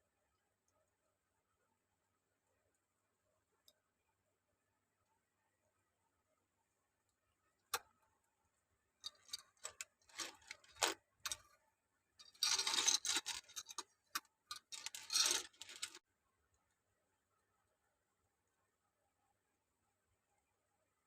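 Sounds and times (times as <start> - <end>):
plastic toy bricks clicking and rattling: 9.0 - 11.4, 12.2 - 16.0.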